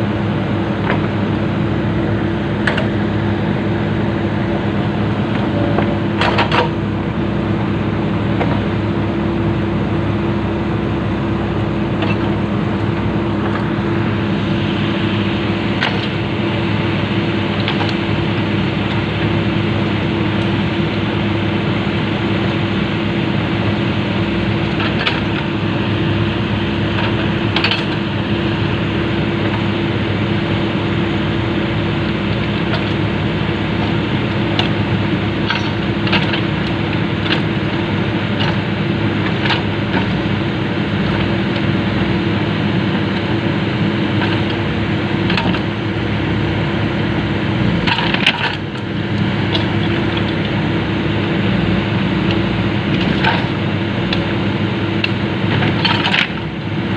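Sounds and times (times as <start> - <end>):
excavator diesel engine running: 0.0 - 56.9
steel track knocks and clanks: 5.3 - 6.8, 15.7 - 16.2, 17.5 - 18.2, 26.9 - 28.1, 33.8 - 40.4, 44.1 - 45.8, 47.8 - 48.9, 52.3 - 54.3, 55.0 - 56.5.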